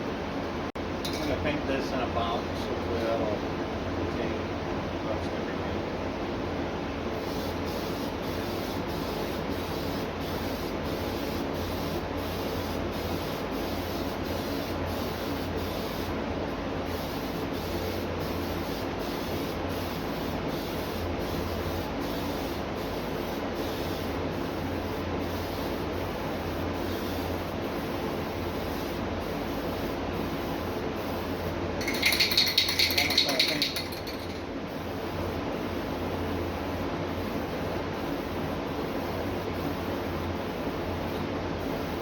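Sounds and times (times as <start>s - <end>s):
paint spray hissing: 7.2s - 16.2s, 16.8s - 34.9s.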